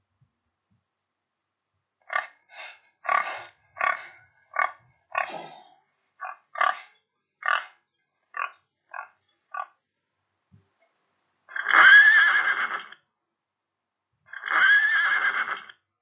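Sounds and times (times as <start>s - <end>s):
pig oinking and grunting: 3.0s - 7.8s.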